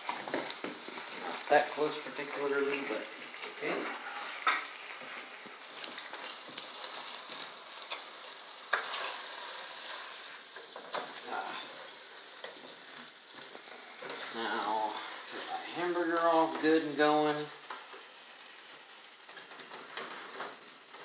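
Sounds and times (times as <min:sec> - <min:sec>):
meat sizzling in a frying pan: 0:00.0 - 0:21.0
spatula scraping and knocking pan: 0:08.7 - 0:11.2.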